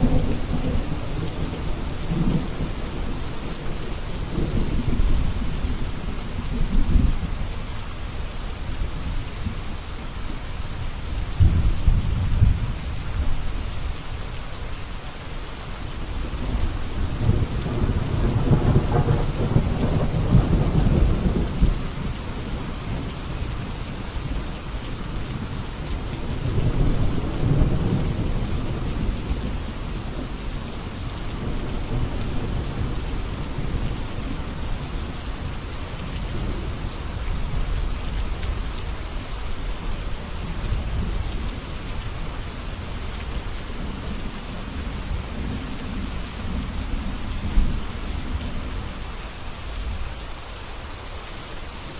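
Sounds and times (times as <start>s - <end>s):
thunder rumbling: 0.0s - 7.3s, 11.4s - 13.5s, 16.2s - 24.6s
heavy rain: 0.0s - 51.9s.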